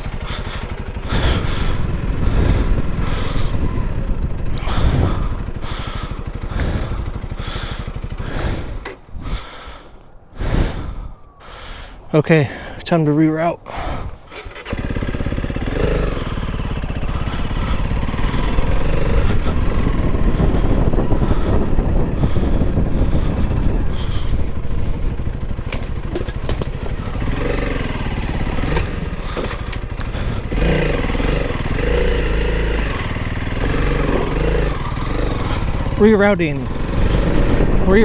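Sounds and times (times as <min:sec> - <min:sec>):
motorcycle engine running: 0:00.0 - 0:10.0, 0:13.7 - 0:38.0
wind rumble on microphone: 0:00.0 - 0:11.5, 0:13.7 - 0:38.0.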